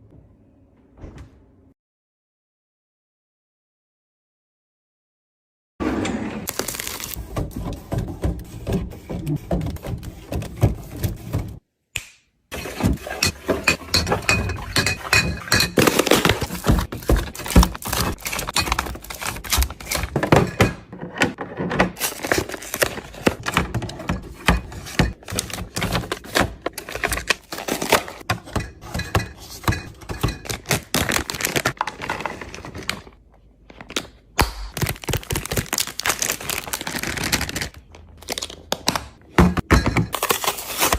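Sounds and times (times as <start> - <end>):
containers and bottles clattering: 12.5 - 33.1.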